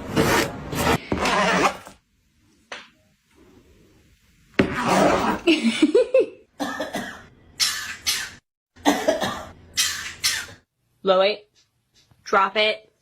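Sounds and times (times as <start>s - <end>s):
harsh loud coughs: 6.6s - 10.6s.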